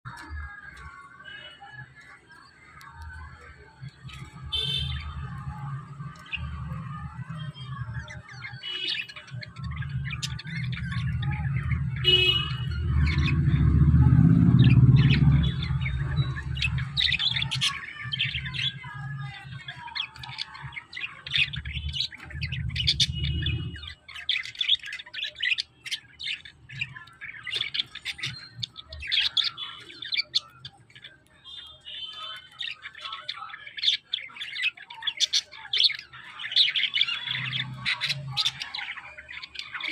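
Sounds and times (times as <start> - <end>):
lovebirds chirping and squawking: 0.0 - 39.9
low rumble: 9.8 - 17.4.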